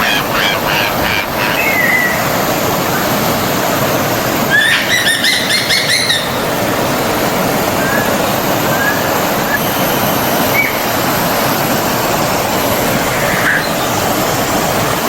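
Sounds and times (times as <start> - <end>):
birds singing: 0.0 - 3.1, 4.5 - 6.6, 10.4 - 11.0, 12.9 - 14.2
forest stream running: 0.0 - 15.0.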